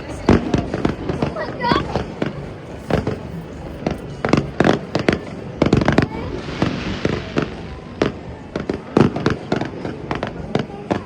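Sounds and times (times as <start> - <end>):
fireworks bursting: 0.0 - 11.0
hissing crackle: 3.0 - 9.5.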